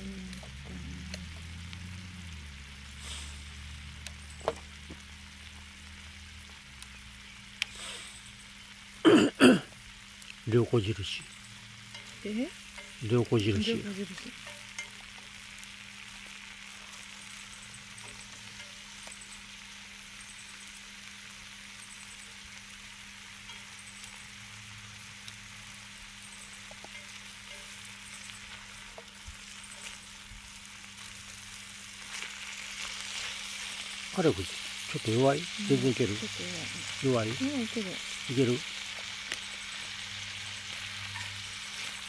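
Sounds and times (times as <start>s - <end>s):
grill sizzling: 0.0s - 42.0s
small ticks: 3.9s - 5.7s, 7.6s - 7.9s, 21.7s - 30.4s.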